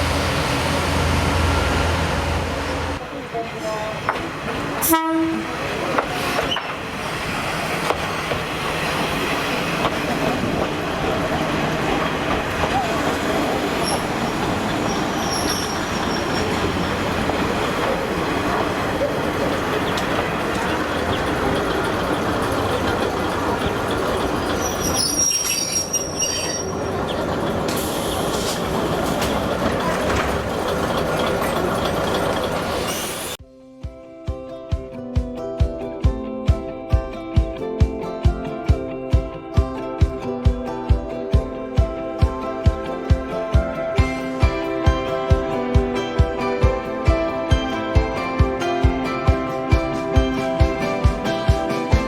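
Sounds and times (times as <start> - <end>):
diesel train running: 0.0 - 33.4, 41.6 - 52.0
train horn tone: 4.8 - 5.6
wheels clicking over rails: 5.9 - 33.4.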